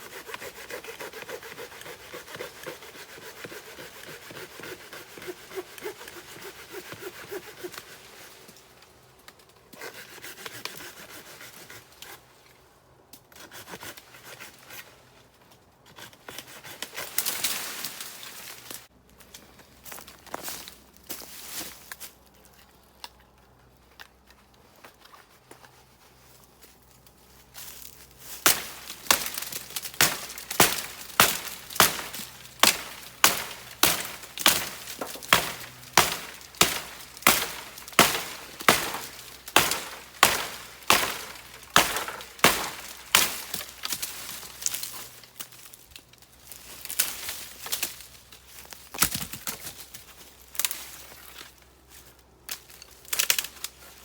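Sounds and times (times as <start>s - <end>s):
hand saw cutting wood: 0.0s - 8.6s, 9.7s - 12.3s, 13.3s - 14.9s, 15.9s - 17.3s, 28.4s - 45.2s.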